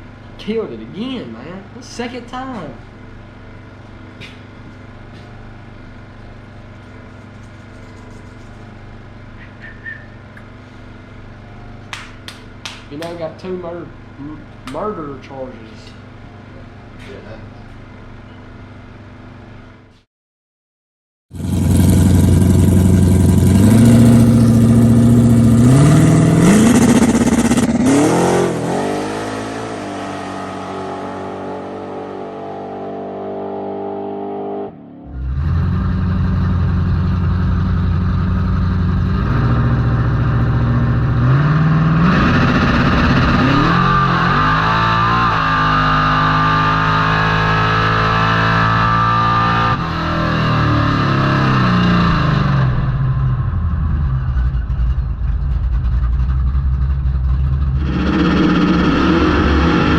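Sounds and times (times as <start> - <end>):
faint high chirp: 9.4 - 10.4
machine humming: 21.4 - 31.5, 52.7 - 59.9
loud engine revving: 21.4 - 55.0, 55.6 - 59.9.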